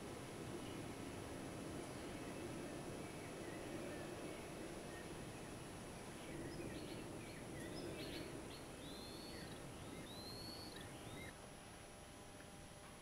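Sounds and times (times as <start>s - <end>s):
steady background hiss: 0.0s - 13.0s
whistled bird notes: 6.2s - 11.3s.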